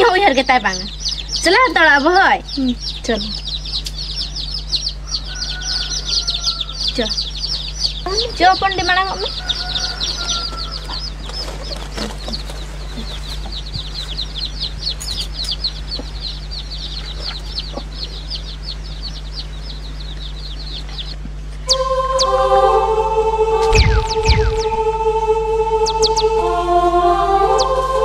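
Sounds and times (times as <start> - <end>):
bird chirping: 0.0 - 26.5
steady low hum: 0.0 - 28.0
music: 21.7 - 28.0.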